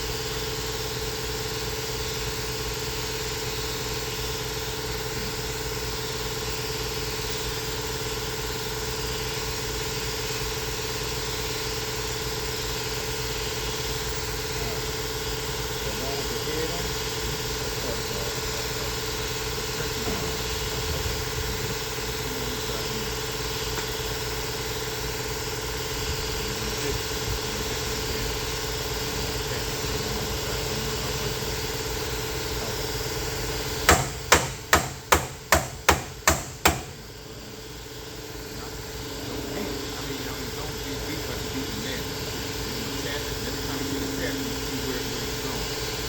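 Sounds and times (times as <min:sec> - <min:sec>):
steady machine hum: 0:00.0 - 0:46.0
hammer blows: 0:33.9 - 0:37.0.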